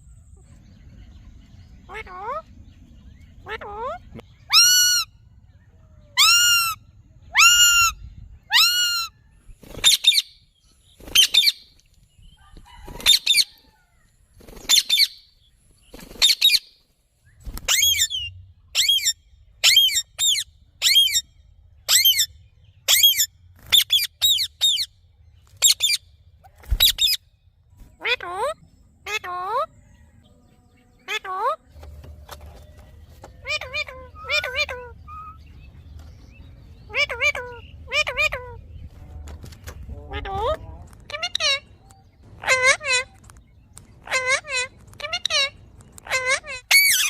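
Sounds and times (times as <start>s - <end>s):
parakeet high-pitched calls: 1.9s - 2.5s, 3.4s - 5.2s, 6.2s - 9.1s, 9.7s - 10.4s, 11.0s - 11.7s, 12.7s - 13.7s, 14.6s - 15.3s, 16.0s - 16.7s, 17.6s - 21.3s, 21.9s - 24.9s, 25.6s - 26.1s, 26.7s - 27.2s, 31.0s - 31.6s, 33.4s - 35.6s, 36.7s - 38.6s, 40.1s - 41.8s, 42.4s - 43.2s, 44.0s - 47.0s.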